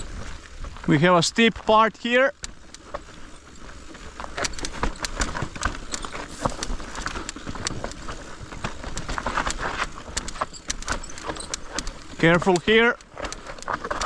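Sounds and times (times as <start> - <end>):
tyres crunching over stones: 0.0 - 0.4, 1.6 - 14.0
bike chain and frame rattling: 1.8 - 14.0.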